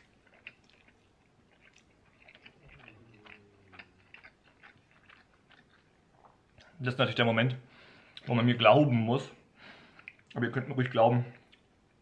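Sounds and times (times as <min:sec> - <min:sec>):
chewing spaghetti: 0:00.0 - 0:06.8, 0:09.7 - 0:12.0.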